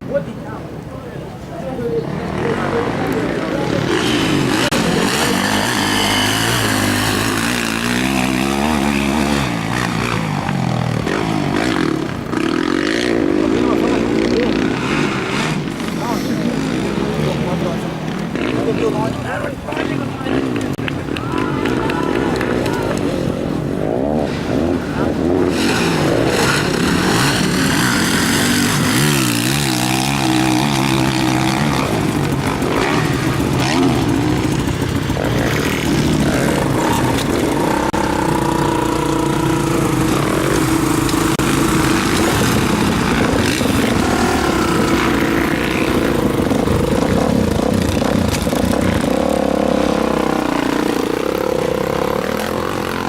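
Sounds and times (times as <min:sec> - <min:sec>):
motocross bike engines revving: 0:00.0 - 0:53.0
steady low engine note: 0:24.4 - 0:53.0.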